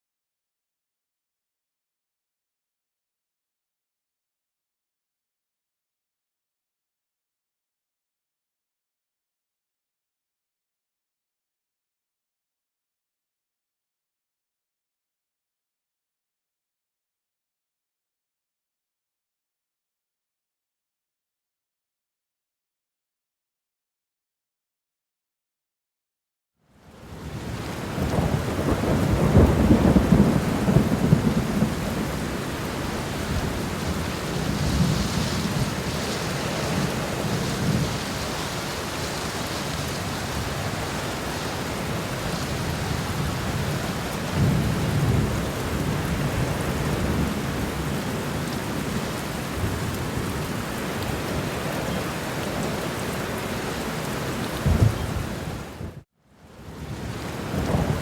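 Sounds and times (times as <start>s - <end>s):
steady rain: 26.7s - 58.0s
thunder rolling: 28.0s - 41.0s, 54.6s - 56.0s
sharp thunder crack: 54.6s - 56.0s.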